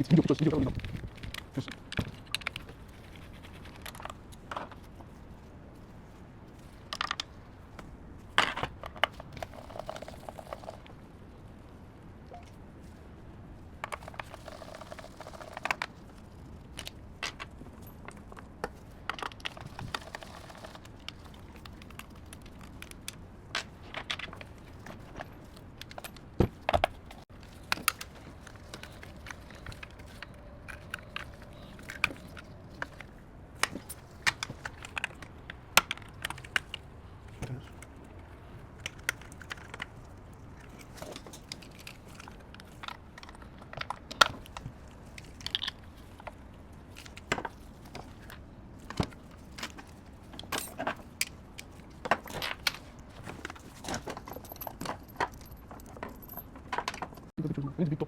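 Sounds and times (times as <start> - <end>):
hand tools clicking and clattering: 13.8 - 57.3.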